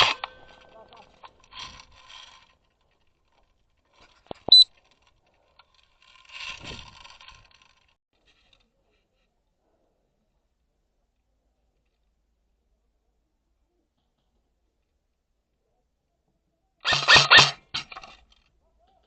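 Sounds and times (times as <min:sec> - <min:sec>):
rustling scrape: 0:00.0 - 0:09.3.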